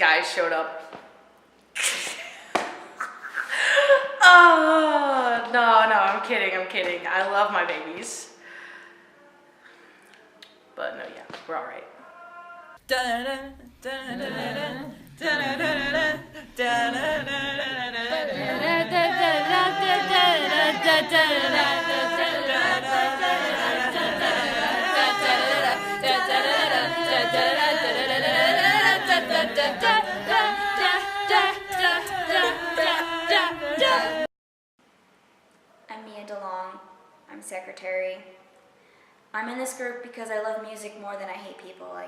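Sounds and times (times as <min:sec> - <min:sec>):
vocal group singing in harmony: 0:12.8 - 0:34.3.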